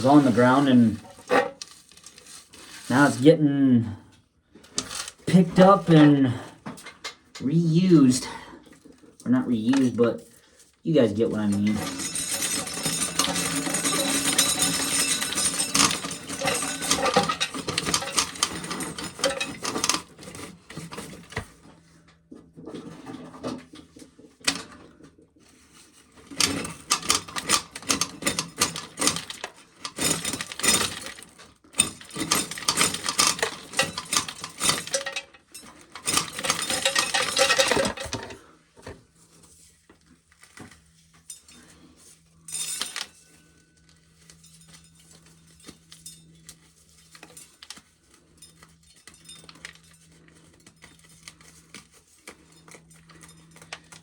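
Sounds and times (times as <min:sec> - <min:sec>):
corn kernels clattering on metal: 0:00.0 - 0:03.2, 0:11.1 - 0:21.7, 0:25.8 - 0:38.5.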